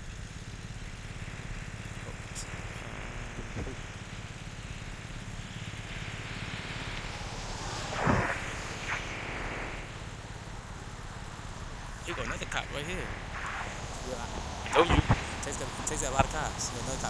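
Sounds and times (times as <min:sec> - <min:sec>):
road traffic: 0:00.0 - 0:17.0
vehicle engine idling: 0:00.0 - 0:17.0
vehicle passing close: 0:00.6 - 0:17.0.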